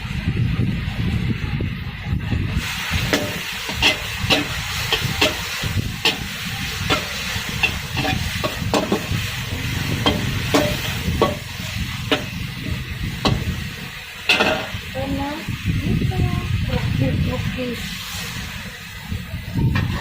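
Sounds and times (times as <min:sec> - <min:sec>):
pork sizzling in a wok: 0:00.0 - 0:20.0
spatula scraping a wok: 0:02.6 - 0:15.1.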